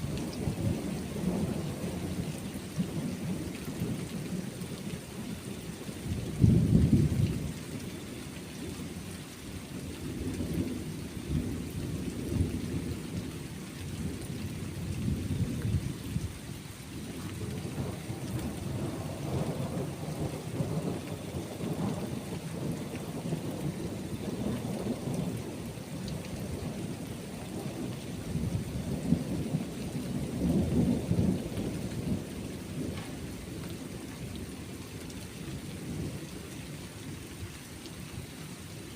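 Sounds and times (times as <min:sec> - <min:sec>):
steady rain falling: 0:00.0 - 0:38.9
rolling thunder: 0:06.2 - 0:07.4, 0:17.2 - 0:33.7.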